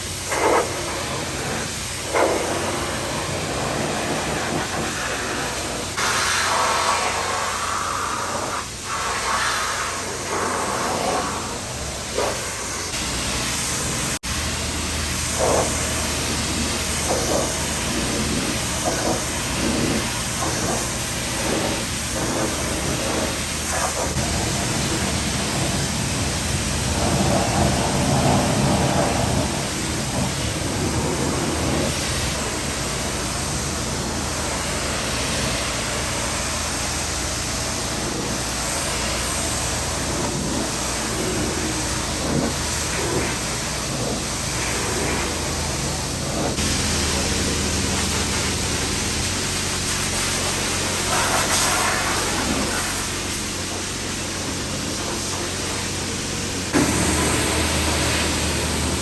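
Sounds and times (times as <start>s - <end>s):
road noise: 0.0s - 59.0s
vehicle engine droning: 0.0s - 59.0s.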